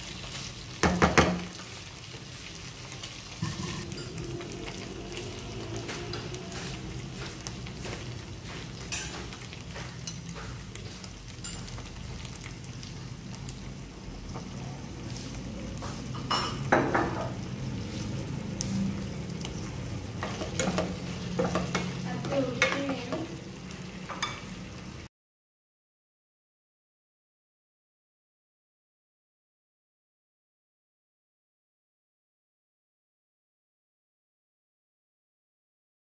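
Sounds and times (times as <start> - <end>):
food sizzling in a frying pan: 0.0 - 25.1.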